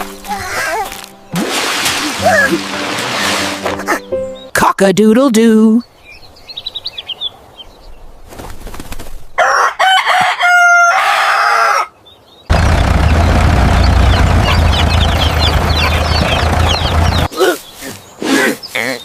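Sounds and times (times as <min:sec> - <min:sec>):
small birds chirping: 0:03.7 - 0:04.6, 0:05.7 - 0:08.8, 0:11.9 - 0:19.0
loud steady rumbling noise: 0:12.5 - 0:17.3
chickens clucking: 0:14.2 - 0:17.3.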